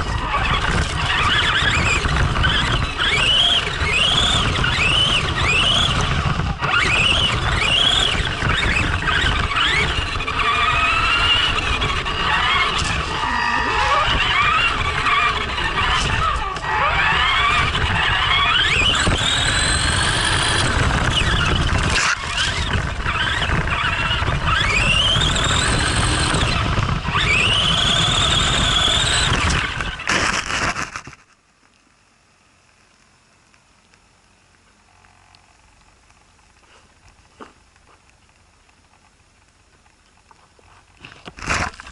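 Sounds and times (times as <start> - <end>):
electric motor whining: 0.0 - 31.1.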